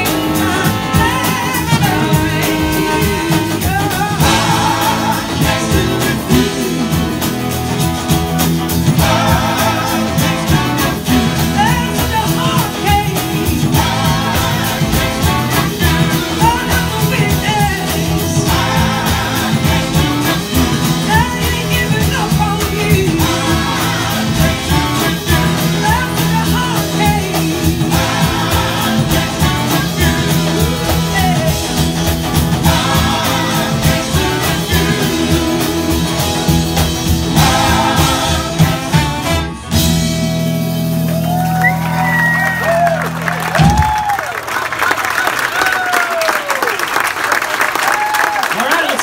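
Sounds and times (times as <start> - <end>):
person singing: 0.0 - 7.5, 8.9 - 32.0, 32.6 - 39.3
live rock band: 0.0 - 49.0.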